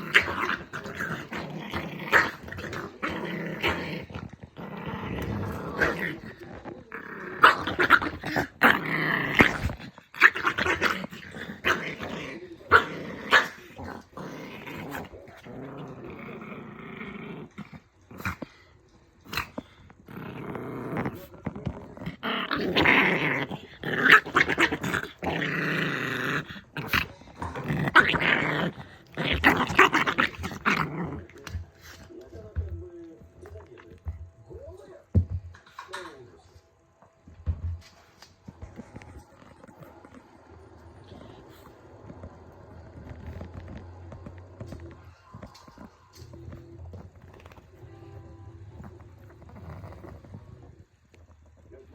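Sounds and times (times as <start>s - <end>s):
dog growling angrily: 0.0s - 32.1s, 48.7s - 50.8s.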